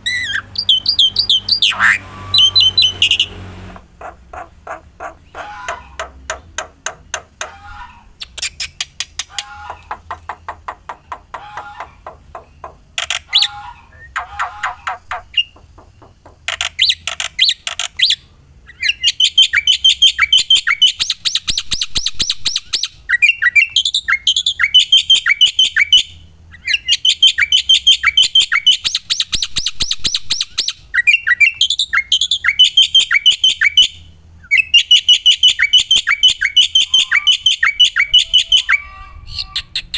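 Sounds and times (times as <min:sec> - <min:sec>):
bird chattering calls: 0:00.0 - 0:39.9.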